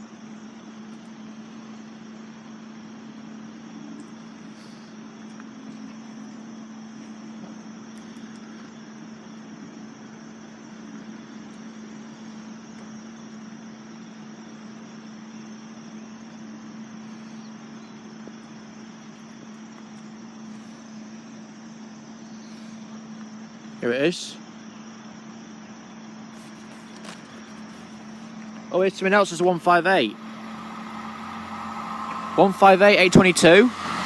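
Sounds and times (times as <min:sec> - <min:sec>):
vehicle engine idling: 0:00.3 - 0:34.0.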